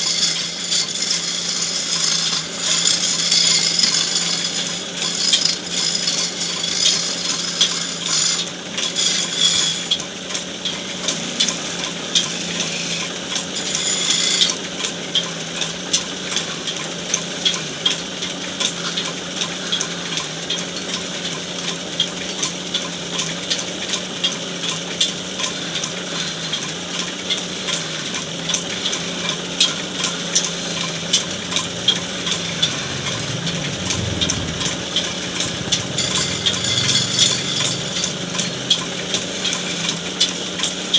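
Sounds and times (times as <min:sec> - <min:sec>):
cutting tool scraping wood: 0:00.0 - 0:15.3, 0:28.2 - 0:40.9
wood lathe motor hum: 0:00.0 - 0:40.9.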